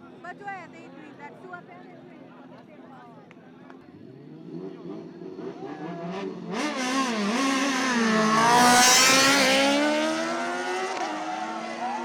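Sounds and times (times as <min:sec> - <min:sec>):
motorcycle engine revving past: 0:04.0 - 0:12.0.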